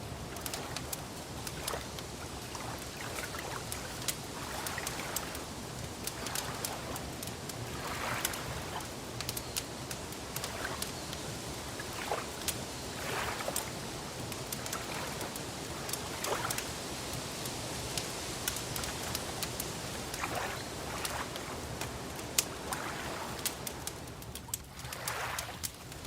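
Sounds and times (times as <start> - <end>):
sharp crackles: 0.0 - 16.7
steady hiss: 0.0 - 26.0
water lapping and gurgling: 0.0 - 26.0.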